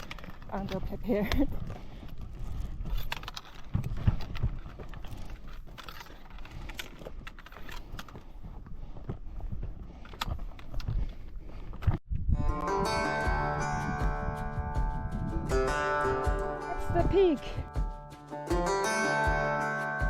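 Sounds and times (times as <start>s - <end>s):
footsteps on rocky ground: 0.0s - 12.1s, 12.8s - 19.4s.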